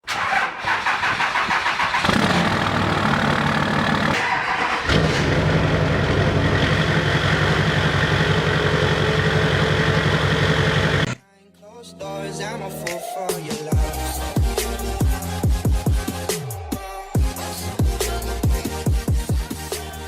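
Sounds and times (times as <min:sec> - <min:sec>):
engine starter cranking: 0:00.0 - 0:06.4
engine running: 0:00.1 - 0:11.2.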